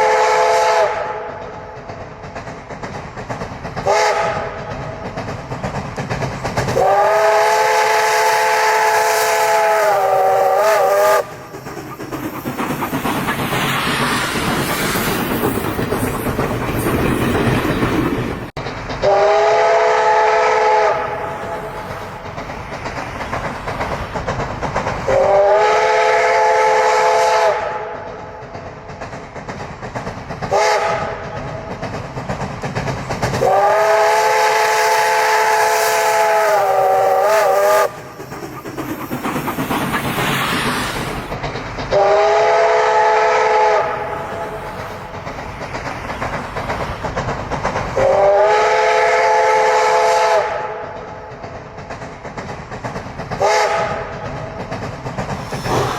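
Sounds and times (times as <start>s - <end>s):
steam locomotive whistle: 0.0s - 1.5s, 3.8s - 4.7s, 6.8s - 11.5s, 19.0s - 21.9s, 25.1s - 28.0s, 30.5s - 31.3s, 33.4s - 38.2s, 41.9s - 44.7s, 48.0s - 51.0s, 53.4s - 54.1s
train wheels clattering: 0.0s - 55.9s.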